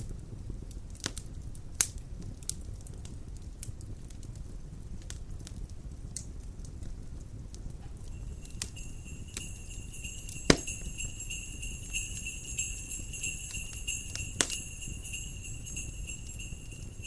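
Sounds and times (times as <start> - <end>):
fire popping: 0.0 - 17.0
wind rumble: 0.0 - 17.0
wood fire crackling: 0.0 - 17.0
small bells jingling: 8.0 - 17.0.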